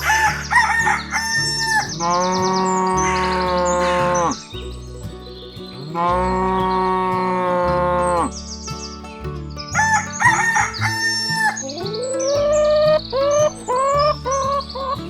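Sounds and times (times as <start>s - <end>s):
rooster crowing: 0.0s - 4.4s, 9.8s - 11.6s
cow mooing: 2.0s - 4.4s.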